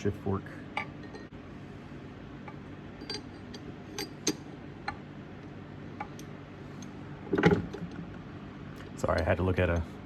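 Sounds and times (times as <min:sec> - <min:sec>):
metal parts clinking: 0:03.0 - 0:04.5.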